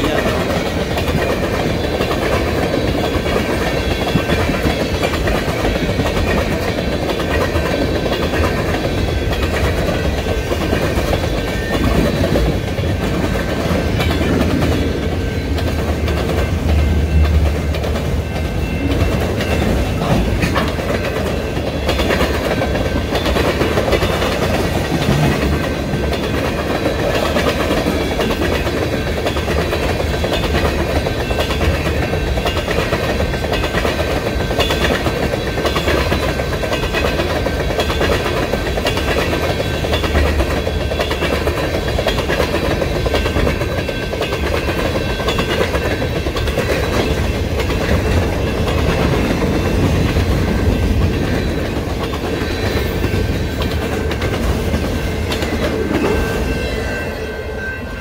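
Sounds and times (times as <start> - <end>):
rhythmic clickety-clack: 0.0 - 57.4
train wheels rumbling on rails: 0.0 - 58.0.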